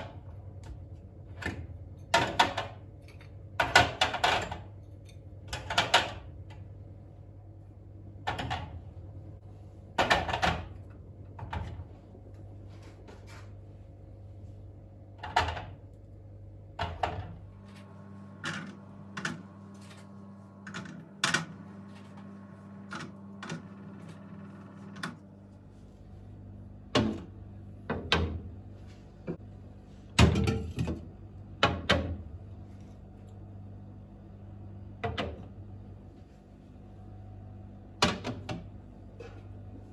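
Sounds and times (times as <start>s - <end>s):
steady low hum: 0.0s - 39.9s
kitchen items knocking and clattering: 1.4s - 4.8s, 8.2s - 8.8s, 9.9s - 11.9s, 15.2s - 15.8s, 30.1s - 32.2s.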